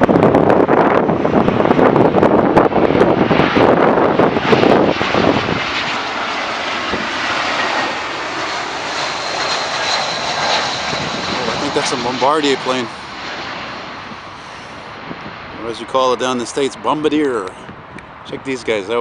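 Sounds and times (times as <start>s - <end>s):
airliner engine rushing: 0.0s - 19.0s
high engine whine: 0.0s - 19.0s
wind buffeting microphone: 0.0s - 19.0s.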